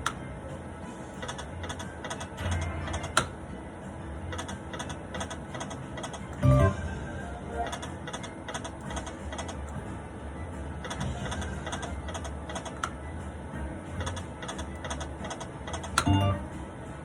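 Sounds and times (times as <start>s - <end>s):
steady low hum: 0.0s - 17.0s
quick irregular machine clicks: 1.2s - 3.3s, 4.3s - 6.4s, 7.7s - 9.6s, 10.9s - 13.0s, 14.0s - 16.1s
short electronic sound: 6.4s - 7.7s, 16.0s - 16.5s.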